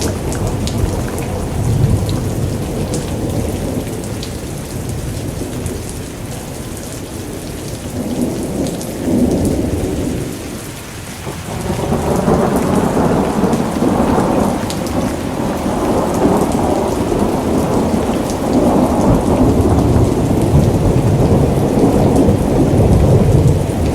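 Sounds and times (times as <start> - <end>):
rolling thunder: 0.0 - 5.8, 11.2 - 23.9
steady rain: 0.0 - 23.9.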